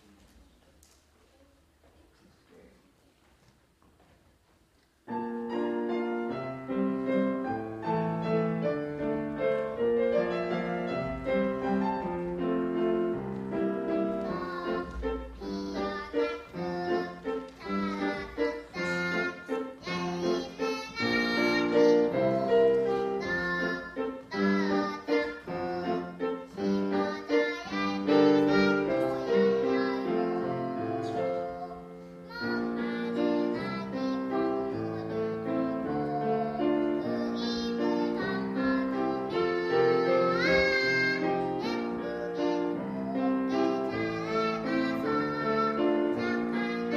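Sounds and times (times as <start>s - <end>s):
piano accompaniment: 5.0s - 46.9s
child singing: 13.8s - 46.9s.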